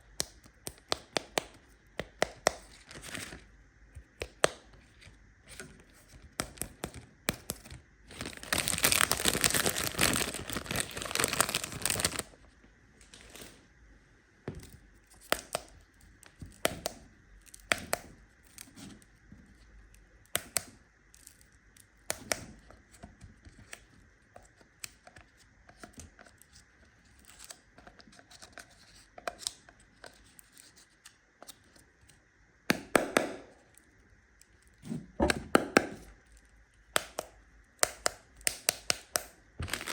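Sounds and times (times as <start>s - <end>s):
packaging crinkling: 2.7s - 3.4s, 6.5s - 12.4s, 13.1s - 13.6s, 39.6s - 39.9s
wrapper tearing: 8.1s - 12.4s, 39.6s - 39.9s.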